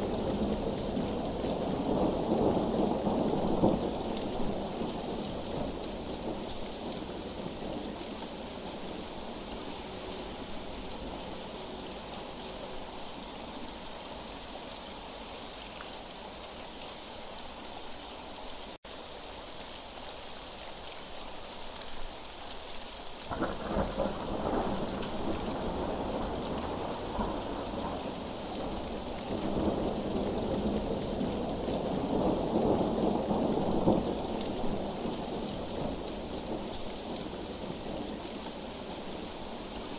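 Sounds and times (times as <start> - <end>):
steady rain: 0.0 - 39.9
rolling thunder: 23.3 - 38.1.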